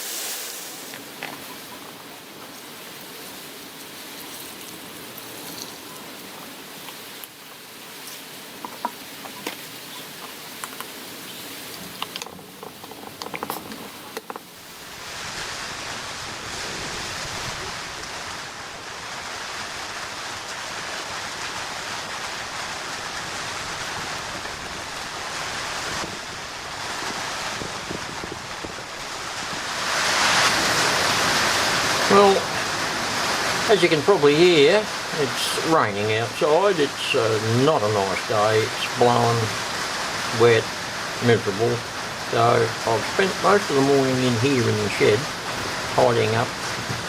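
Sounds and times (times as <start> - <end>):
rain falling: 0.0 - 47.0
water drips and taps: 6.4 - 14.5.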